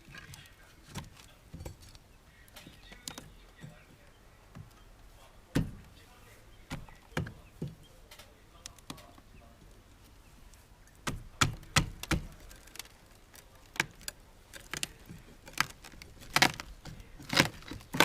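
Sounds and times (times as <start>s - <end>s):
knocks and thumps of wood: 5.5s - 6.0s, 6.7s - 7.8s, 11.0s - 12.9s, 13.7s - 18.0s.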